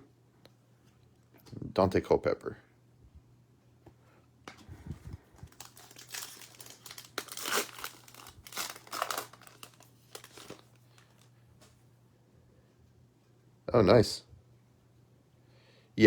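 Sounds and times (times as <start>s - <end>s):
foil wrapper crinkling: 5.2s - 11.3s.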